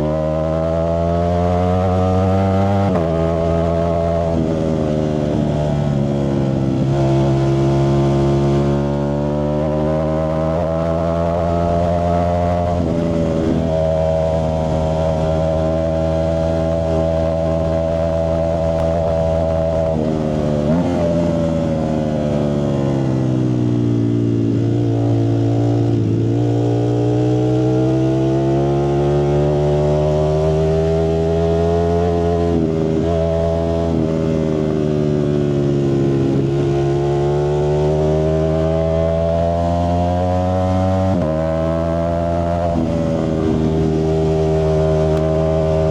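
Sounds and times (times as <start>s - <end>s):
motorcycle engine running: 0.0s - 27.7s, 38.1s - 45.9s.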